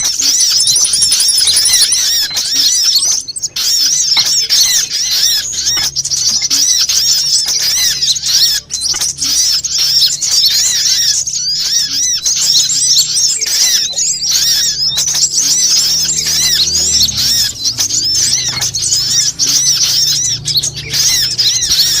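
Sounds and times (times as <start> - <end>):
high-pitched bird chirps and twitters: 0.0 - 22.0.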